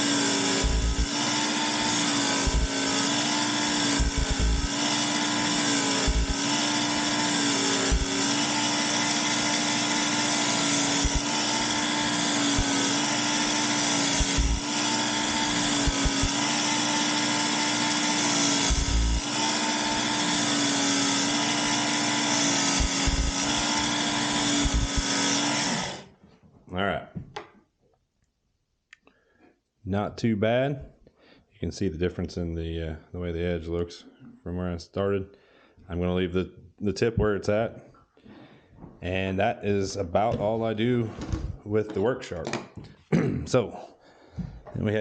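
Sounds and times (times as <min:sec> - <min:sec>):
belt sharpener motor whirring: 0:00.0 - 0:26.1.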